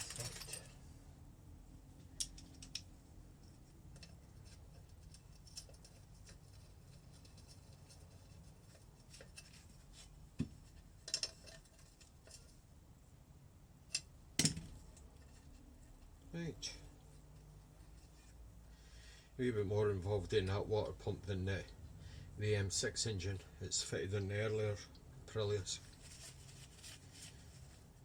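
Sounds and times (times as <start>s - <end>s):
hand tools clinking on metal: 0.0s - 0.8s
faint steady hum: 0.0s - 28.0s.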